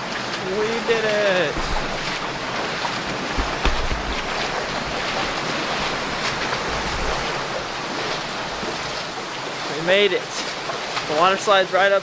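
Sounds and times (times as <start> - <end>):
flowing water: 0.0 - 12.0
wind buffeting microphone: 0.5 - 9.4.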